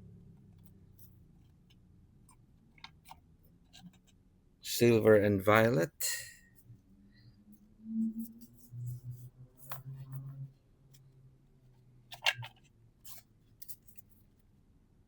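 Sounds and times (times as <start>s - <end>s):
low hum: 6.6s - 11.6s.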